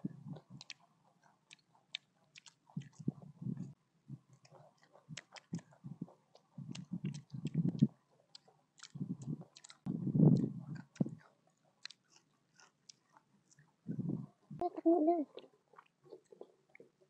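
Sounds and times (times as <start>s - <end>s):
wet chewing sounds: 0.3s - 14.4s, 15.3s - 17.0s
low mouth sound: 2.4s - 12.0s.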